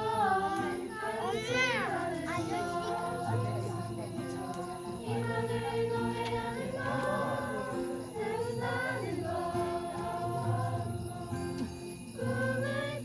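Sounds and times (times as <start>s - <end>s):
children singing in chorus: 0.0s - 13.0s.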